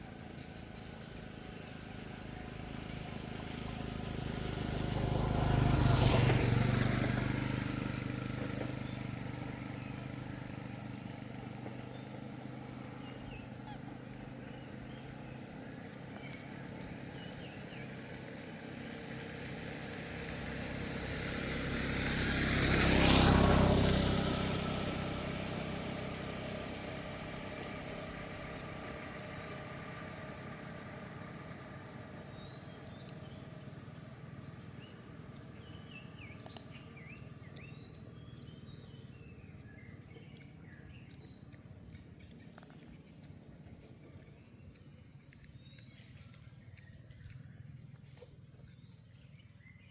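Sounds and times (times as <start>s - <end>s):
motor vehicle passing: 0.0s - 49.9s.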